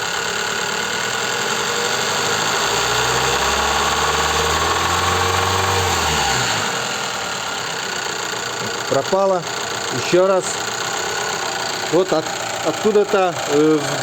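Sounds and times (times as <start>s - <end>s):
car engine revving: 0.0s - 14.0s
engine rod knocking: 7.6s - 14.0s.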